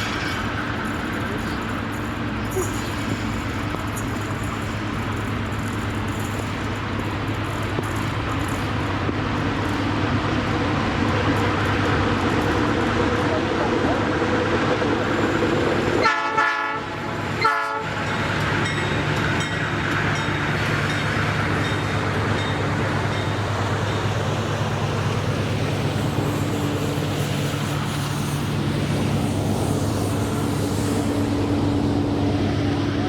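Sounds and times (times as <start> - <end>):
locomotive engine droning: 0.0 - 33.0
train horn blasts: 16.0 - 18.0.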